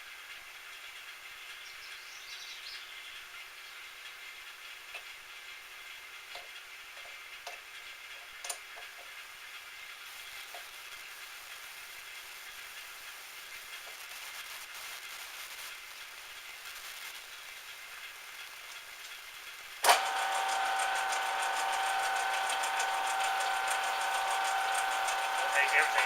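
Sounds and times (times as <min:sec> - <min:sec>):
metal lathe running: 0:19.6 - 0:26.0.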